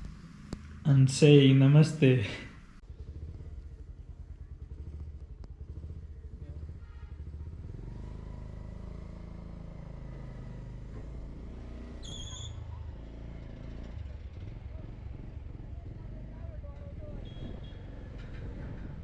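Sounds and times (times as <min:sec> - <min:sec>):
motorbike engine throbbing: 0:00.0 - 0:08.8, 0:12.1 - 0:19.0.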